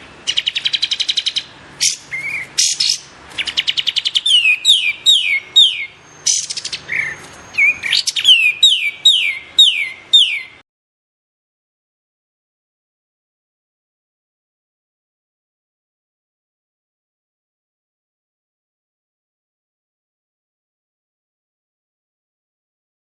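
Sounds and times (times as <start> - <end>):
bird rattling trills: 0.3 - 10.5
bird whistled notes: 0.3 - 10.6.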